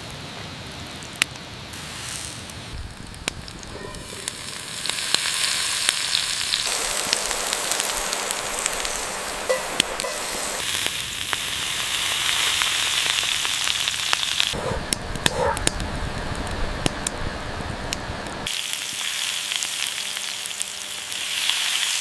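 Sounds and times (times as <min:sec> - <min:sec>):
food sizzling in hot fat: 0:01.7 - 0:14.6, 0:18.3 - 0:22.0
fat popping and crackling: 0:02.4 - 0:11.5, 0:12.6 - 0:18.5.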